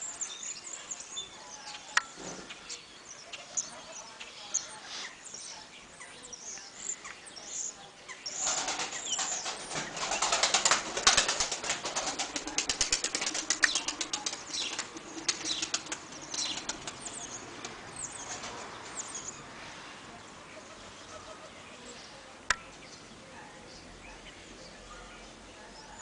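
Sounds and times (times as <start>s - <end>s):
pigeon wings flapping: 8.4s - 18.6s.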